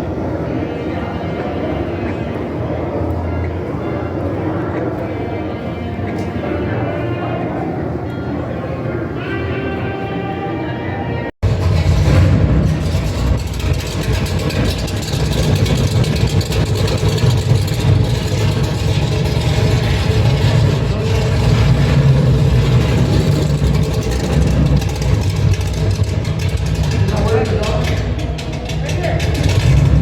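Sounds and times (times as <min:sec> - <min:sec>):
car engine running roughly: 0:11.4 - 0:30.0.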